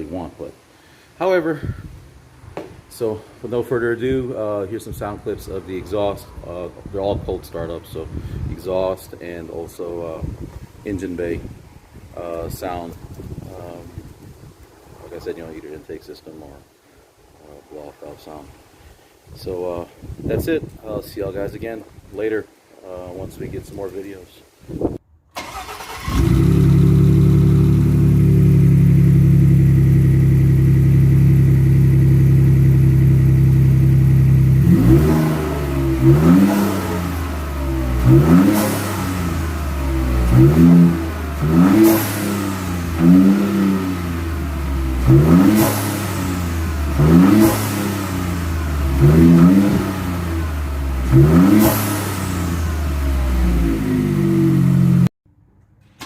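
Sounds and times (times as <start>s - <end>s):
truck engine revving: 25.4s - 55.1s.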